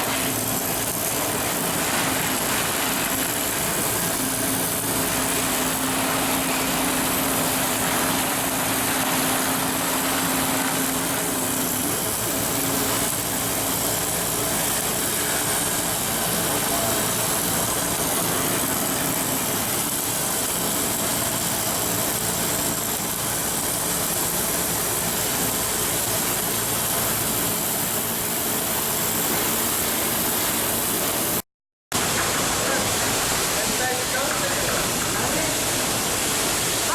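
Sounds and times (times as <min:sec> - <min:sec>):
machinery hum: 0:00.0 - 0:21.0.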